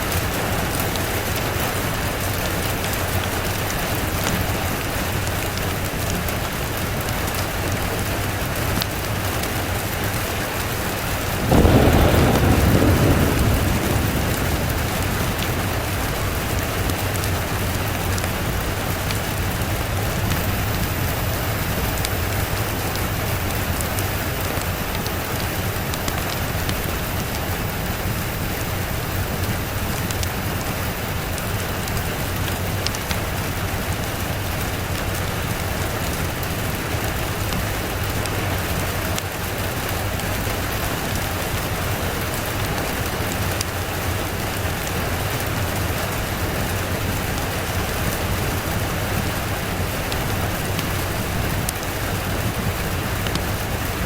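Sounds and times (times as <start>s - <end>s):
steady rain falling: 0.0s - 54.0s
steady low rumble: 11.5s - 21.8s.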